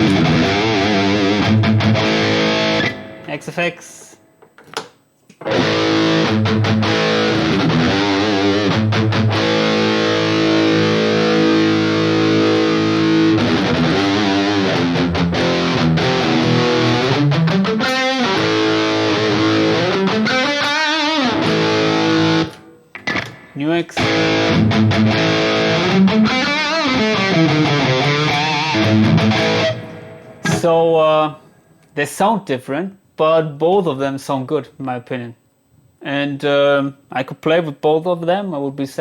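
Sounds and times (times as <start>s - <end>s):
distorted electric guitar: 0.0s - 3.6s, 5.4s - 30.8s.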